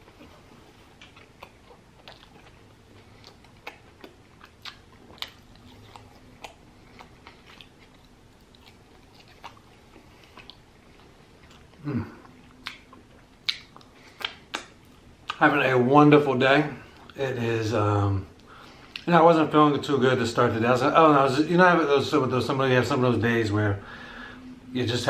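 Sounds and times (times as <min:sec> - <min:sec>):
wet chewing mouth smacks: 0:01.0 - 0:15.4.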